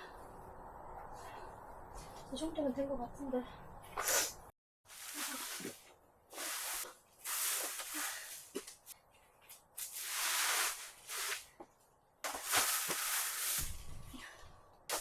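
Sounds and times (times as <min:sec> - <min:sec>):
rustling swishes: 0:12.3 - 0:14.2.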